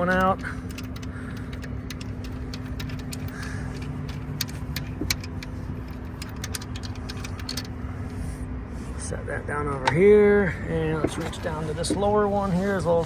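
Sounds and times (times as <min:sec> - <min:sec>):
low rumble and hum: 0:00.0 - 0:13.0
metallic clicks of bolt being loosened: 0:00.1 - 0:07.8.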